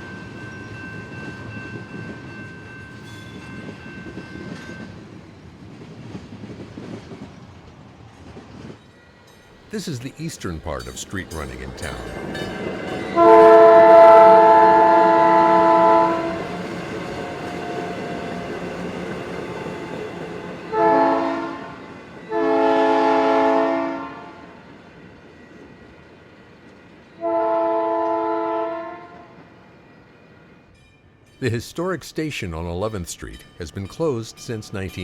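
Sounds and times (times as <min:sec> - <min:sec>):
train rumbling on track: 0:00.0 - 0:29.8
train air horn blasts: 0:13.2 - 0:16.4, 0:20.7 - 0:21.7, 0:22.3 - 0:24.4, 0:27.2 - 0:29.2.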